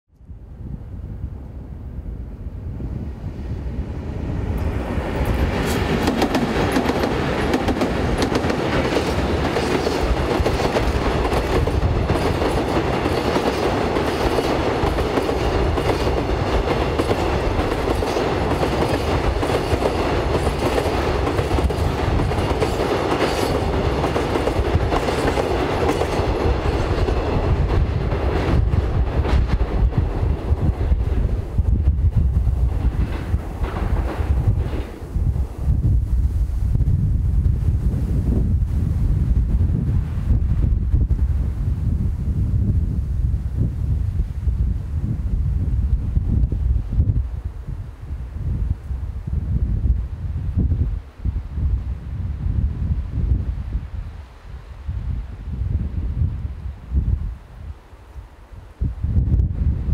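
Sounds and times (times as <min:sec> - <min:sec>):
freight train crossing bridge: 0:00.6 - 0:36.0
wheels clacking on rail joints: 0:04.6 - 0:28.6.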